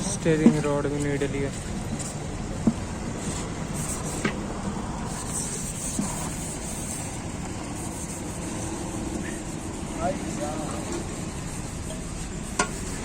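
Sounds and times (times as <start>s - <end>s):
car repair workshop noise: 0.0s - 13.0s.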